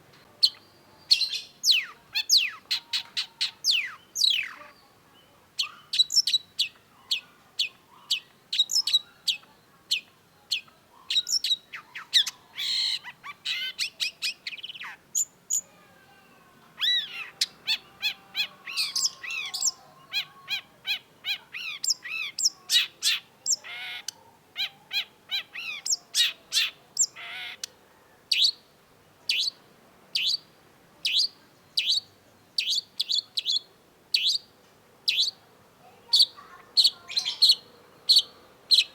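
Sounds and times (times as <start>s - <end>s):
bird singing whistled notes: 0.4s - 4.6s, 5.2s - 9.4s, 18.7s - 23.7s, 28.3s - 28.6s, 29.3s - 29.6s, 30.2s - 30.5s, 31.1s - 34.5s, 35.1s - 35.4s
bird warbling: 16.8s - 27.7s.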